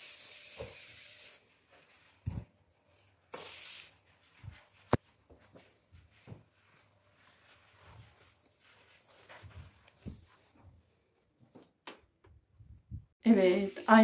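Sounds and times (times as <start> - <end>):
faint handling sounds: 4.2 - 11.8.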